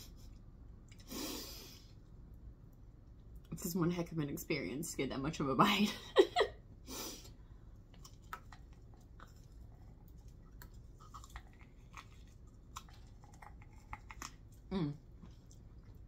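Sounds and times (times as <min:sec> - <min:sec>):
faint chewing corn on the cob: 0:07.3 - 0:16.0.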